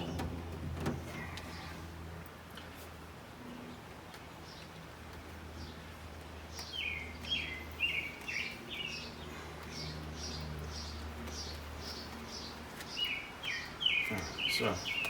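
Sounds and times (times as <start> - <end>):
small bird chirping: 6.5 - 15.0.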